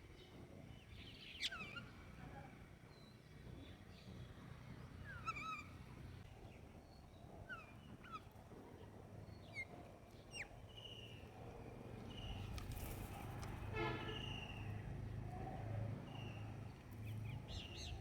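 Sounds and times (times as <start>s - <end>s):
bird calls and chirps: 0.2s - 2.0s.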